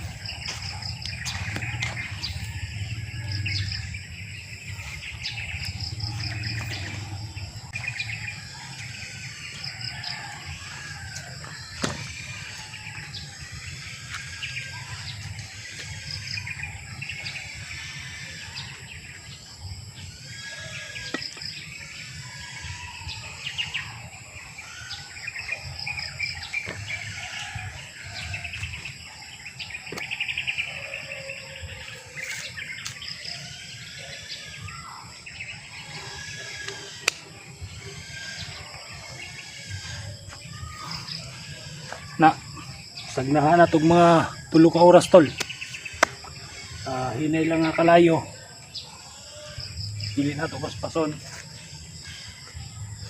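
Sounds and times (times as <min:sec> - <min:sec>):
steady low rumble: 0:00.0 - 0:18.2
birds chirping chorus: 0:00.0 - 0:53.0.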